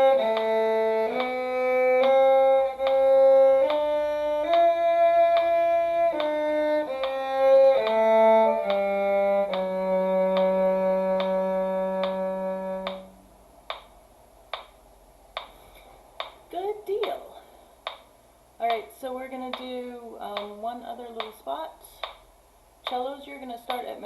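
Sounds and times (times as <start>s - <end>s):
metronome clicking: 0.0s - 13.1s, 13.7s - 14.8s, 15.4s - 15.6s, 17.9s - 20.6s, 22.0s - 24.0s
cello: 0.0s - 13.2s
violin: 0.0s - 13.2s.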